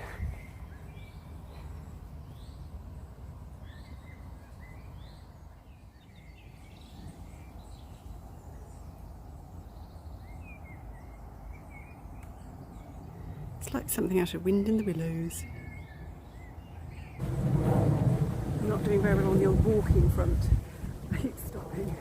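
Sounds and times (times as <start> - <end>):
small birds chirping: 0.0 - 17.2, 18.6 - 22.0
steady low rumble: 15.5 - 22.0.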